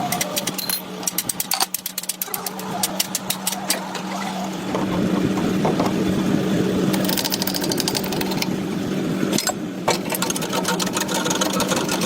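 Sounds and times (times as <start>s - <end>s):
machine humming: 0.0s - 12.0s
fast rattling clatter: 6.9s - 8.5s, 9.9s - 12.0s.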